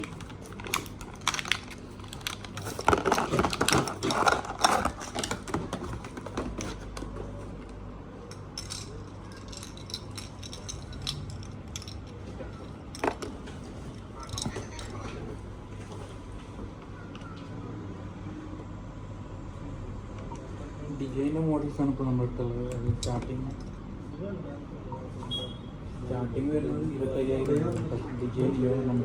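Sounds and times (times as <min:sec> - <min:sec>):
small plastic parts clattering: 0:00.0 - 0:07.2, 0:08.3 - 0:15.1.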